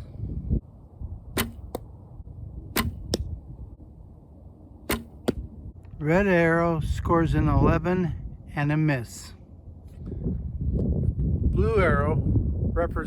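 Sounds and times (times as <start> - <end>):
arrow hitting target: 1.3 - 1.9, 2.7 - 3.3, 4.8 - 5.5.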